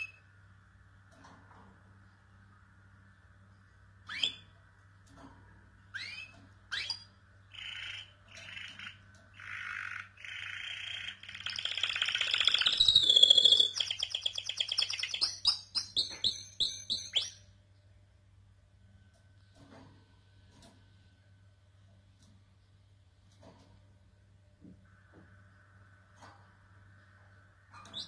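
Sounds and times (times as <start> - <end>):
faint low hum: 0.0 - 28.0
canary singing: 4.0 - 4.5, 5.9 - 17.5, 27.7 - 28.0.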